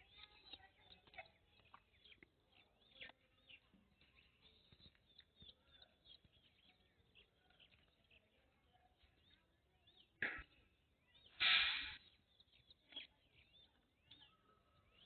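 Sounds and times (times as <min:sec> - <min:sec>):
small birds chirping: 0:00.0 - 0:15.0
sharp noisy bursts: 0:11.4 - 0:12.0.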